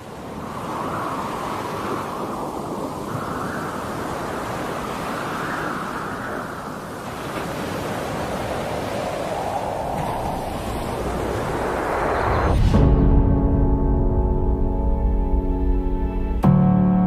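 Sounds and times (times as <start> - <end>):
wind blowing: 0.0 - 16.4.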